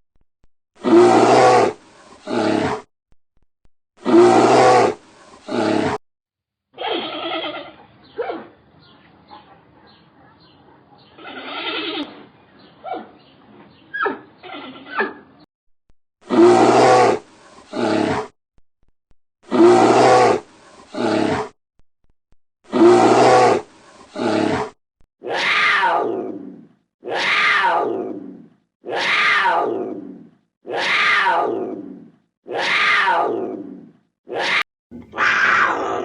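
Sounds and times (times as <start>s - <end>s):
big cat roaring: 0.8s - 2.9s, 4.0s - 6.0s, 16.2s - 18.3s, 19.5s - 21.6s, 22.7s - 36.0s.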